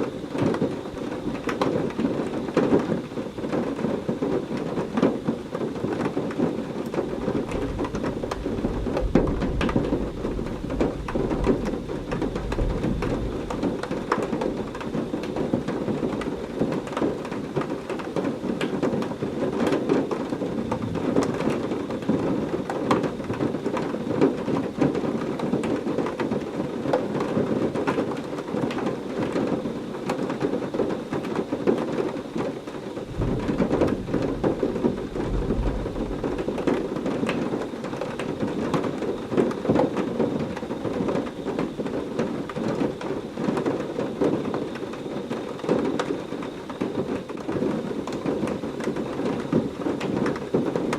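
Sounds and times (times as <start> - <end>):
heavy rain falling: 0.0 - 50.9
thunder rumble: 6.9 - 17.4, 20.1 - 23.8, 32.9 - 43.6.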